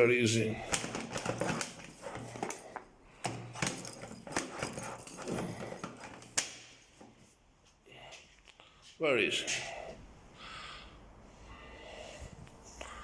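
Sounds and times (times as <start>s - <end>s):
bag clicks and knocks: 0.7s - 6.7s.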